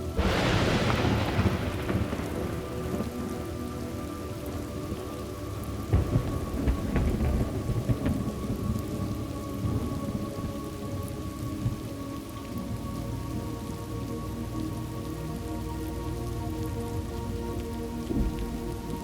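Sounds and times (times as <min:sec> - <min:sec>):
steady rain: 0:00.0 - 0:19.0
rolling thunder: 0:00.1 - 0:10.8.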